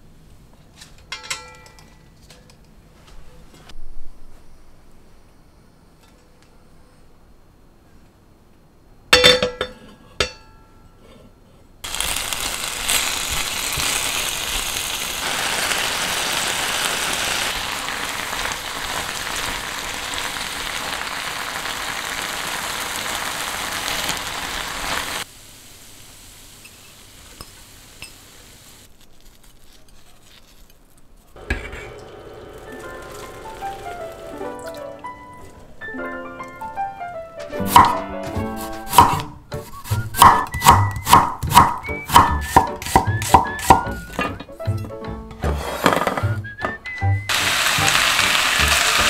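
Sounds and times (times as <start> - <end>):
cookware clinks: 1.0 - 2.1, 9.2 - 10.8
potatoes sizzling in oil: 11.8 - 28.9, 31.4 - 35.1, 47.3 - 49.0.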